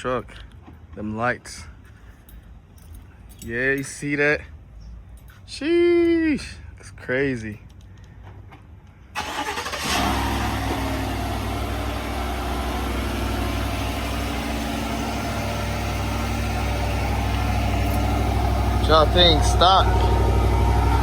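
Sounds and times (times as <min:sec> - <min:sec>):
truck engine starting and idling: 0:09.1 - 0:21.0.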